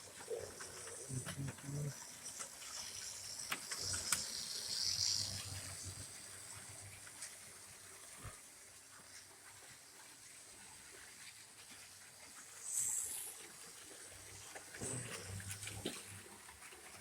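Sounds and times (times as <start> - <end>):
model train ticking on track: 0.0 - 7.3.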